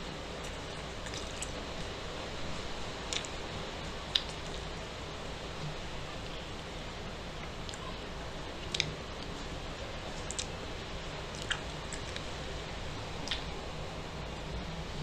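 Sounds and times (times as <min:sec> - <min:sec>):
steady background hiss: 0:00.0 - 0:15.0
wet mouth clicks: 0:04.1 - 0:04.5, 0:08.7 - 0:09.0, 0:10.2 - 0:10.6, 0:11.4 - 0:12.3, 0:13.2 - 0:13.5
person chewing food: 0:11.4 - 0:12.3.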